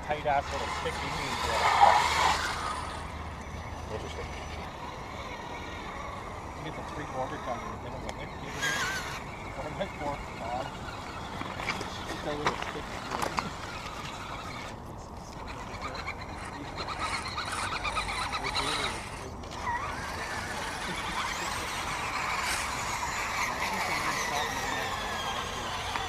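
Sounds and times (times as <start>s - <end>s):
rc truck motors whining: 0.0s - 26.0s.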